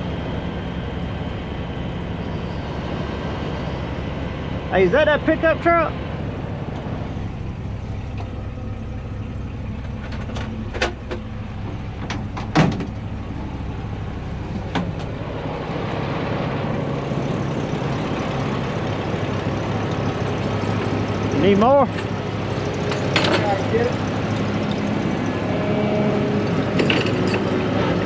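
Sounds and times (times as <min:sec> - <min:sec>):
heavy truck engine running: 0:00.0 - 0:28.0
sharp metallic clanks: 0:22.8 - 0:23.7.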